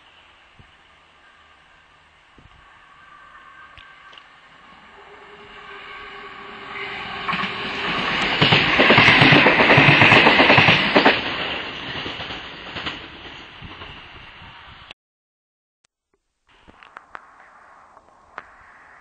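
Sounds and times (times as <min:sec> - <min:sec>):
train rumbling past: 0:00.0 - 0:14.9.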